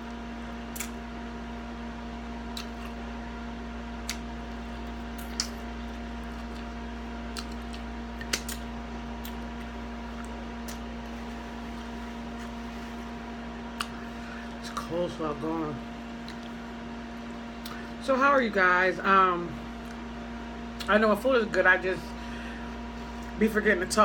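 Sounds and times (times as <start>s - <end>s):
steady hum: 0.0s - 24.0s
mouth eating sounds: 2.5s - 3.1s, 4.0s - 10.9s, 13.7s - 14.9s.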